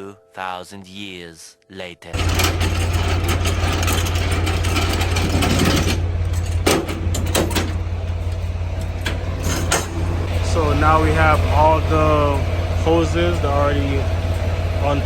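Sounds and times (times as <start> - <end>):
sharp metallic clicks and knocks: 2.2 - 9.9
diesel engine idling: 2.2 - 15.0.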